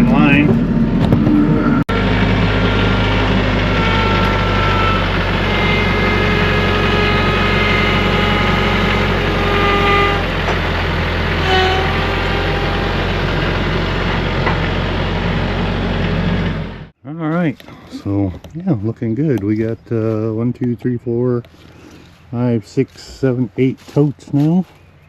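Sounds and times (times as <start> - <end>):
tractor engine running: 0.0 - 17.0
short high-pitched squeals: 1.3 - 14.1.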